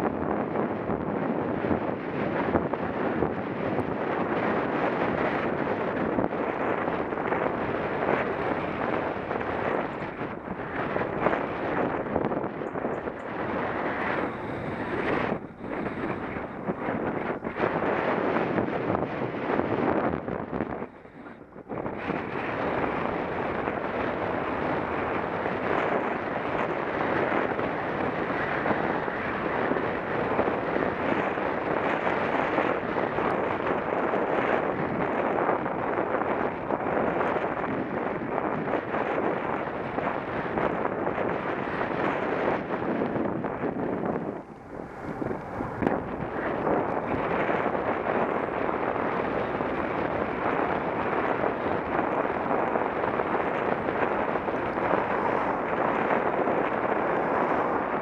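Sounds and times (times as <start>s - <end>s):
wind rushing on microphone: 0.0s - 58.0s.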